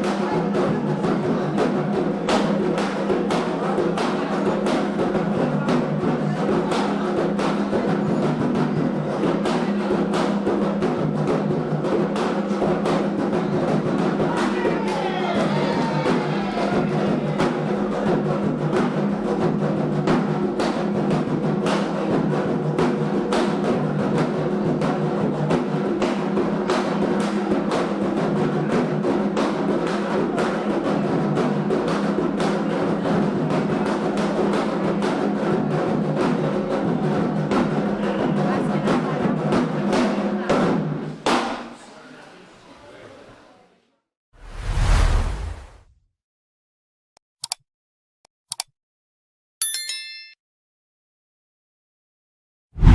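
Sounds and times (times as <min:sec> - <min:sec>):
hand drums beating rhythm: 0:00.0 - 0:41.6.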